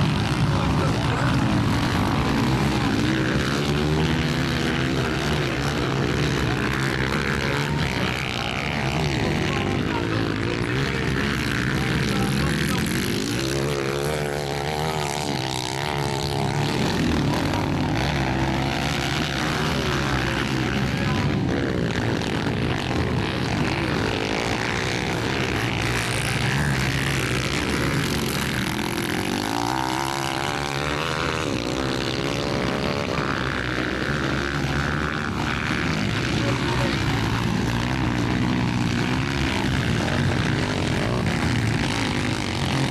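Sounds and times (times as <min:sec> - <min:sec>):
motocross bike engines revving: 0:00.0 - 0:42.9.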